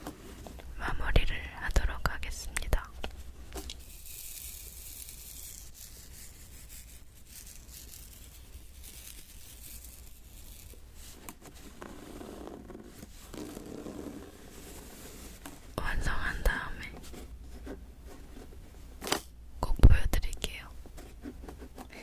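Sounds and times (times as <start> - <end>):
fingertips scratching beads: 3.7 - 15.4.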